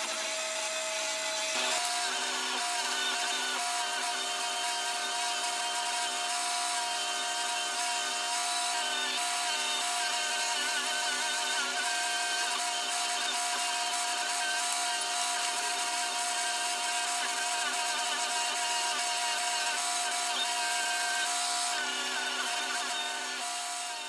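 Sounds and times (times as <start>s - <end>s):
power tool motor whine: 0.0s - 24.0s.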